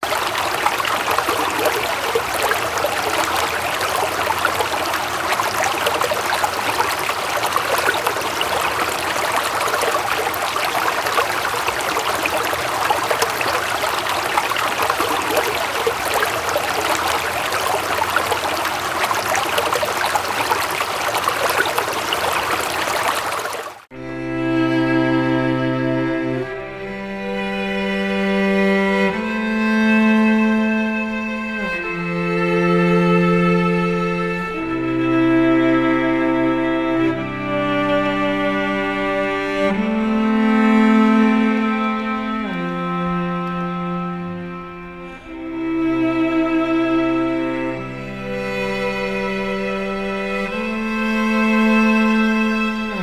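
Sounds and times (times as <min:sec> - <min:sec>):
stream rushing and splashing: 0:00.0 - 0:23.9
slow sad bowed-string music: 0:23.9 - 0:53.0.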